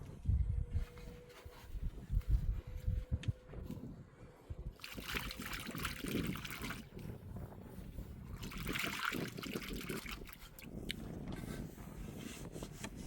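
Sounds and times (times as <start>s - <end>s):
water pouring: 4.8s - 6.9s, 8.4s - 10.7s.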